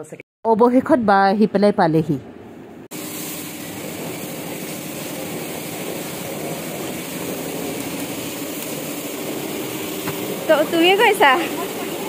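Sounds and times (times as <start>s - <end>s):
outdoor hiss: 2.9s - 12.0s.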